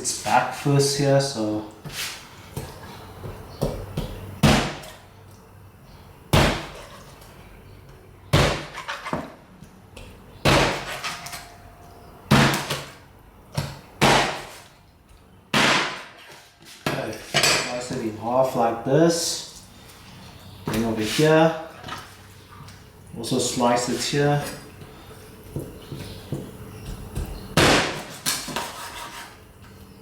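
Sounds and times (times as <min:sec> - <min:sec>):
knife chopping through chicken: 0:13.6 - 0:14.6, 0:25.6 - 0:29.4.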